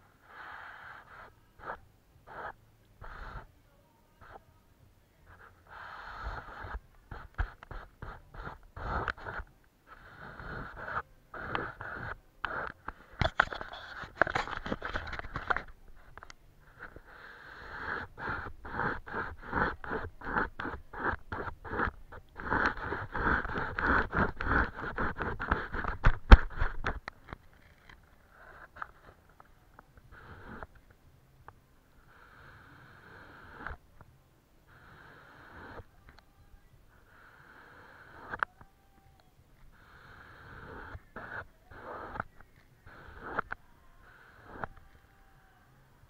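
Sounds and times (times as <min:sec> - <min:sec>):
paintbrush scrubbing on paper: 0:17.3 - 0:26.8.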